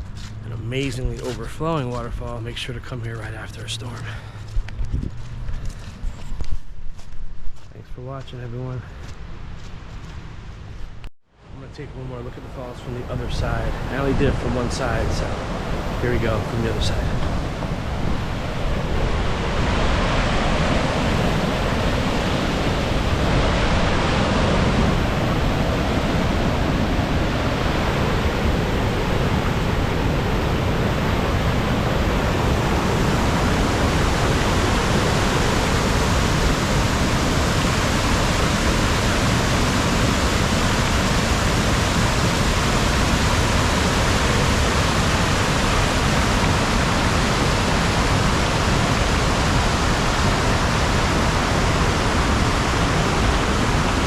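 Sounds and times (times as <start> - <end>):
waterfall rushing: 12.4 - 54.0.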